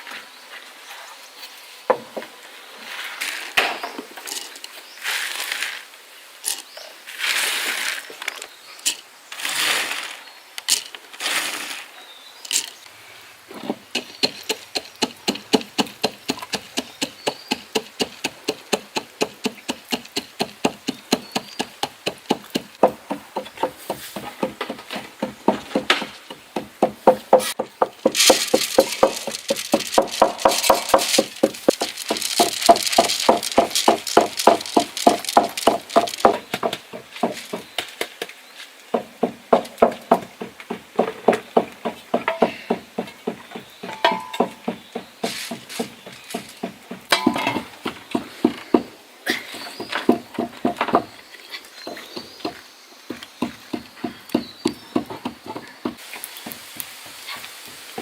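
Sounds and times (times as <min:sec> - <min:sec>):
handling knocks and rustles: 0:00.0 - 0:12.8, 0:13.5 - 0:58.0.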